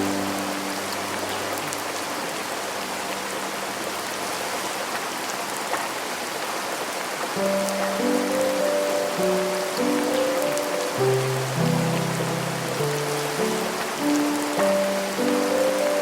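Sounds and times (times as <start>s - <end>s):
piano note: 0.0s - 3.8s, 7.4s - 16.0s
soft piano chords: 0.0s - 5.4s, 7.3s - 16.0s
steady rain hiss: 0.0s - 16.0s
raindrops ticking: 7.4s - 16.0s.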